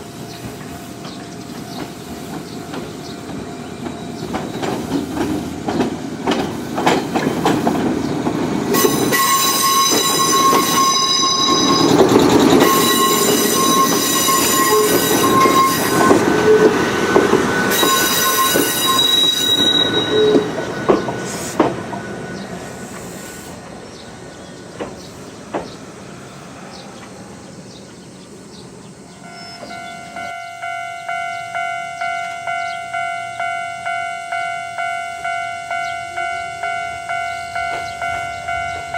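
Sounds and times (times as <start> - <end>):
electric train passing: 0.0 - 38.9
wheels clattering over rail joints: 0.6 - 25.8
long high-pitched tones: 8.7 - 21.0, 29.1 - 38.9
level-crossing warning bell: 8.7 - 21.3, 29.1 - 38.9.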